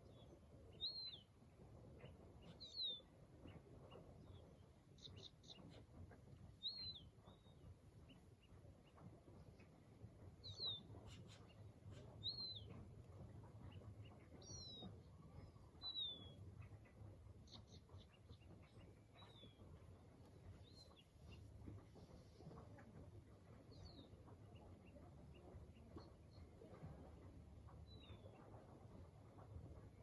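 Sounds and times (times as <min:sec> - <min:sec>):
bird chirping: 0:00.0 - 0:01.4, 0:02.0 - 0:09.8, 0:10.4 - 0:22.9
low steady rumble: 0:00.0 - 0:30.0.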